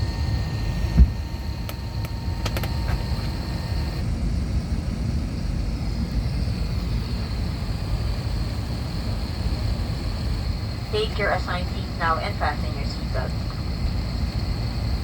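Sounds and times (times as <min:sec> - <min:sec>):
airliner cabin rumble: 0:00.0 - 0:15.0
faint high whine: 0:06.1 - 0:15.0.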